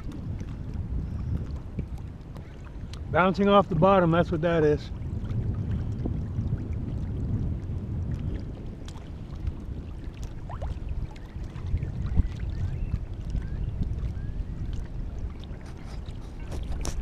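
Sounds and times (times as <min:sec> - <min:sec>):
water lapping against kayak hull: 0:00.0 - 0:17.0
wind rumble on microphone: 0:00.0 - 0:17.0
small splashes: 0:08.2 - 0:12.6.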